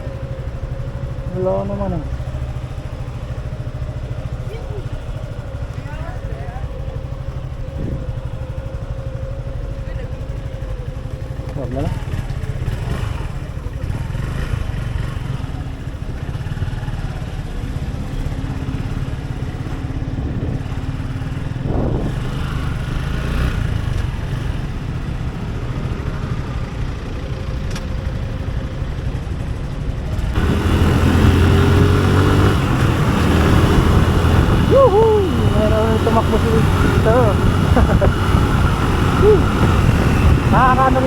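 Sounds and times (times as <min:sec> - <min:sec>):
motorcycle engine accelerating: 0:00.0 - 0:41.0
wind rumbling on microphone: 0:07.6 - 0:08.5, 0:20.1 - 0:22.8, 0:30.3 - 0:41.0.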